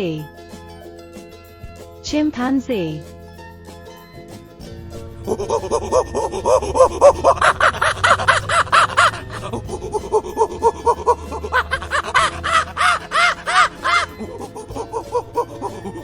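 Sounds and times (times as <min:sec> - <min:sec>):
chimpanzee hooting: 0:04.8 - 0:16.0.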